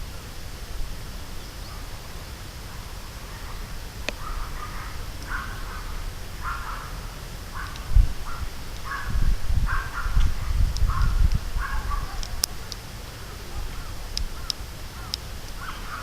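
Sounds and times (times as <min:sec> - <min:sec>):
steady low rumble: 0:00.0 - 0:16.0
crow cawing: 0:02.7 - 0:12.4, 0:13.3 - 0:16.0.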